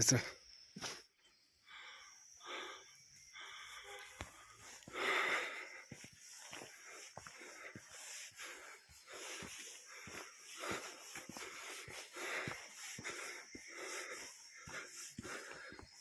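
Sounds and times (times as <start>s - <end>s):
heavy wheezy breathing: 1.6s - 16.0s
footsteps on a path: 4.0s - 16.0s.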